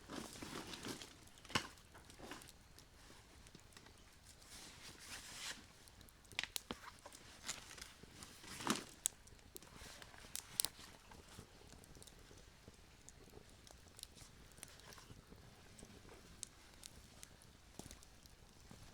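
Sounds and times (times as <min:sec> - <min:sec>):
burning wood popping and snapping: 0:00.0 - 0:18.9
faint hiss: 0:00.0 - 0:18.9.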